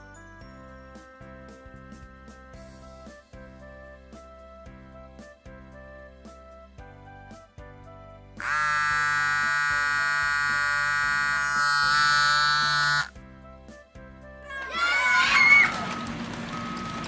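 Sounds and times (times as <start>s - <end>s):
light background music: 0.0s - 17.0s
loud buzzing tone: 8.4s - 13.1s.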